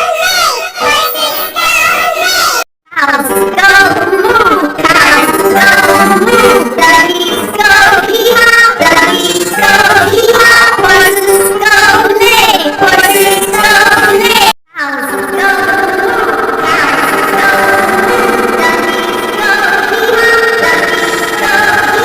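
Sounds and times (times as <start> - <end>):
electronically altered singing: 0.0 - 22.0
music backing: 15.2 - 22.0.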